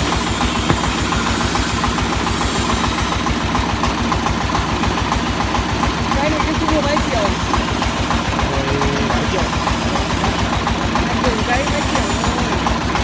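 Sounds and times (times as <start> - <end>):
drilling rig engine pulsing: 6.1 - 13.0.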